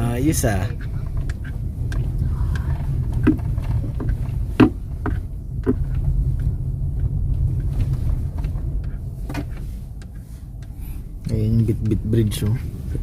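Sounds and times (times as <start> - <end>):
car driving on rough road: 0.0 - 13.0
short knocks: 0.7 - 6.5.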